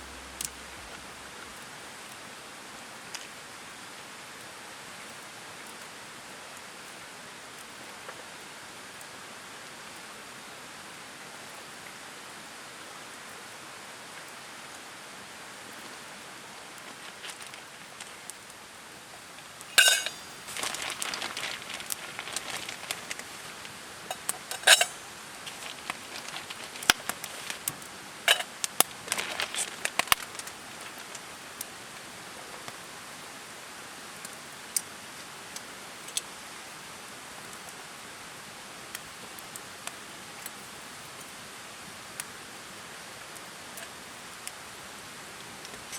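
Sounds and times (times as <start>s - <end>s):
steady hiss: 0.0s - 45.9s
cookware clinking: 19.7s - 20.5s, 24.1s - 25.0s, 28.3s - 28.5s
utensils clattering: 19.7s - 21.1s, 24.1s - 25.1s, 28.3s - 28.5s.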